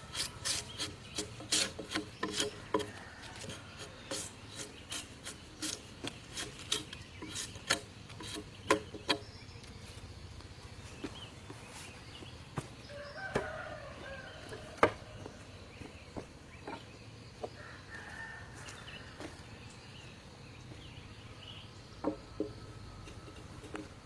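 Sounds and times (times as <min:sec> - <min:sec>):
hand tool rasping on wood: 0:00.0 - 0:09.2.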